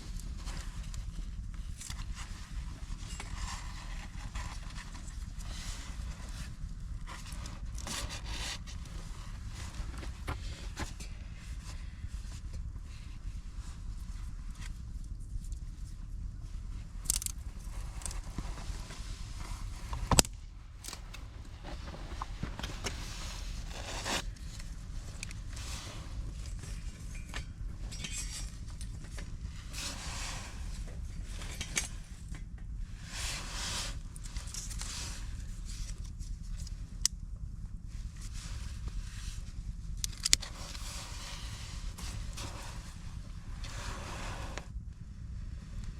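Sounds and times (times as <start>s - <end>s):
rustling and scraping: 0.0s - 44.8s
steady low rumble: 0.0s - 45.9s.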